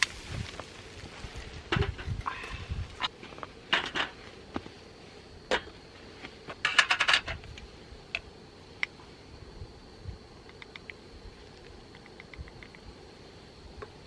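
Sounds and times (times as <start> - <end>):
sharp clicks: 10.4 - 11.0, 11.6 - 12.9.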